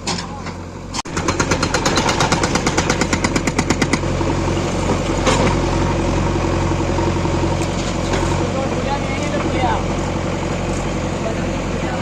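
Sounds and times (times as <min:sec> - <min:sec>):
diesel engine running: 0:00.0 - 0:12.0
hydraulic breaker hammering stone: 0:01.1 - 0:04.0.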